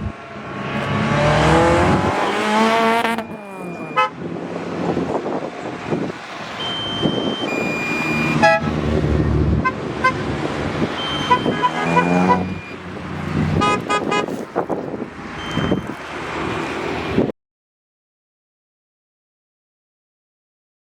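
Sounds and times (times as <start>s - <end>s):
cars driving by revving: 0.0s - 17.3s
car horns tooting: 2.0s - 4.3s, 6.6s - 16.0s.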